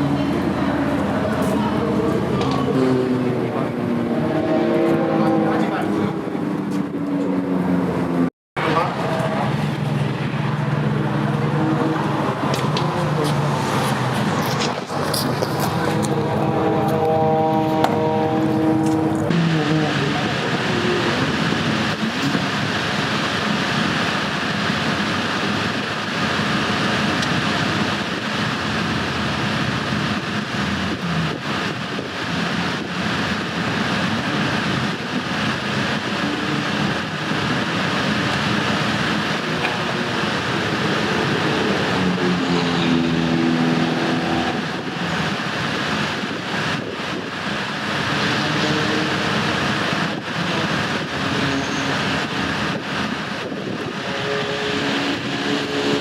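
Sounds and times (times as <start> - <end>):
race car engines roaring: 0.0 - 56.0
single engine note: 15.7 - 20.2.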